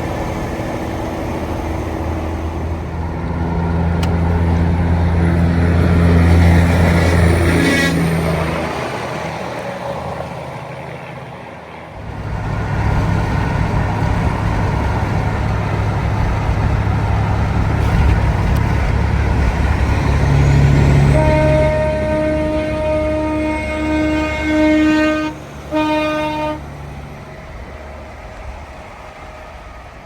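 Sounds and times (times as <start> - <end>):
heavy vehicle rumbling past: 0.0 - 29.0
road noise: 0.0 - 30.0
vehicle horn chord: 21.0 - 26.6.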